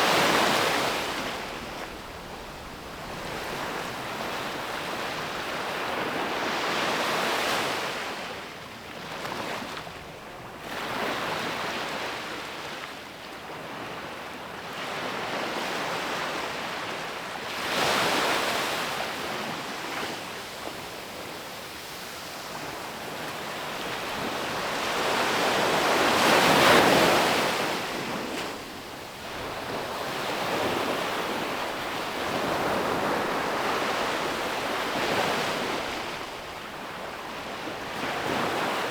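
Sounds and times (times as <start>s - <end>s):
ocean waves breaking on beach: 0.0s - 8.2s, 17.5s - 38.9s.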